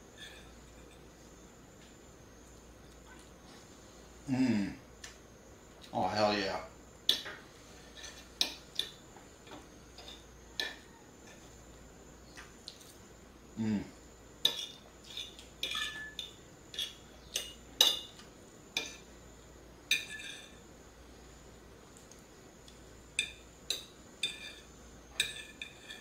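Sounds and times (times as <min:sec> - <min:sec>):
cutlery clinking on plate: 0:10.0 - 0:11.4, 0:14.4 - 0:18.2, 0:19.9 - 0:20.6, 0:23.2 - 0:26.0.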